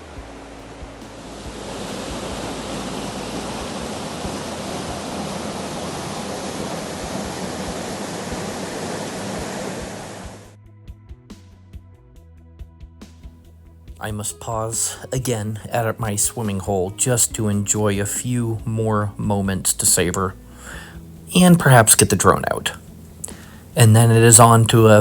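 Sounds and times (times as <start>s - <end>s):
waterfall rushing: 0.0s - 10.5s.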